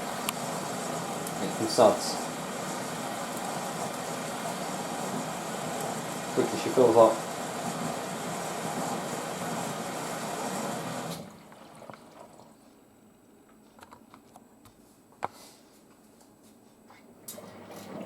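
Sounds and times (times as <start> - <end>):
water rushing into washing machine: 0.0 - 12.7, 17.2 - 18.0.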